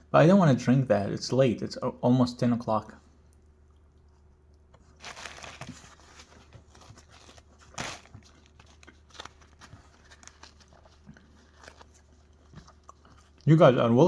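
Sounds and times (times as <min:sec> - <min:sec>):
bread tearing rustle: 0:04.8 - 0:13.7
bread crackling: 0:04.8 - 0:14.0.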